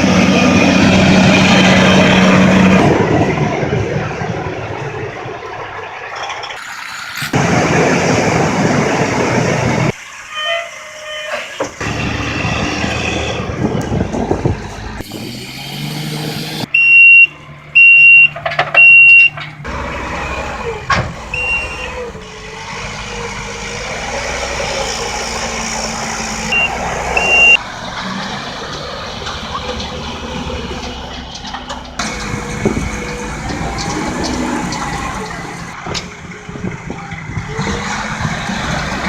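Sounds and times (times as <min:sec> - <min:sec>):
truck engine running: 0:11.8 - 0:39.0
backup alarm beeping: 0:16.7 - 0:19.4, 0:21.3 - 0:22.0, 0:26.5 - 0:27.6.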